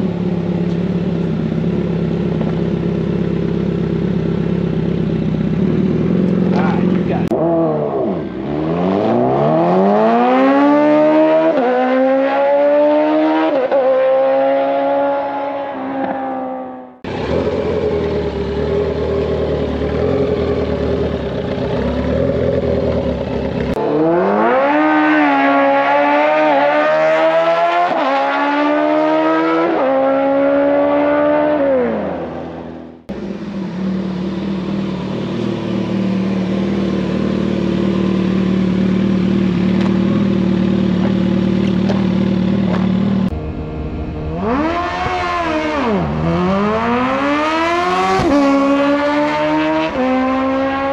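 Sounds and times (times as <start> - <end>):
motorcycle engines idling: 0.0 - 7.4, 17.0 - 23.8, 33.1 - 46.2
motorcycles accelerating hard: 4.2 - 50.9.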